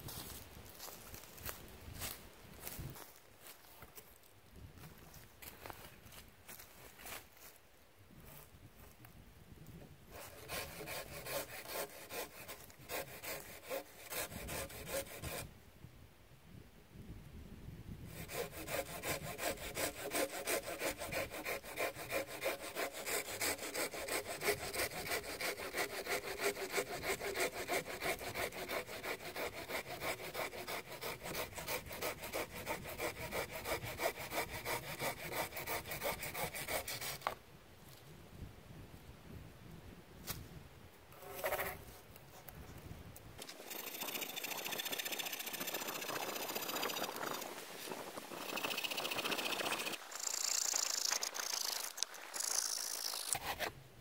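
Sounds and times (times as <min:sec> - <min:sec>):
hand saw cutting wood: 0:10.1 - 0:15.5, 0:18.1 - 0:37.4, 0:43.4 - 0:53.7.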